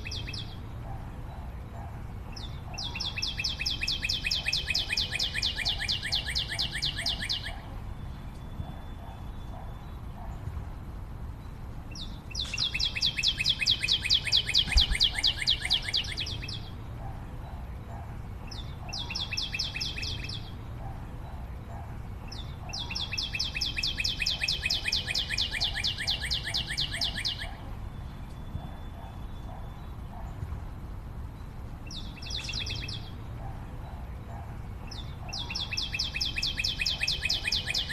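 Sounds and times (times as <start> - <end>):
bird singing fast trill: 0.0 - 0.6, 2.3 - 10.1, 11.4 - 16.8, 18.5 - 20.6, 22.3 - 30.2, 31.4 - 33.2, 34.4 - 37.9.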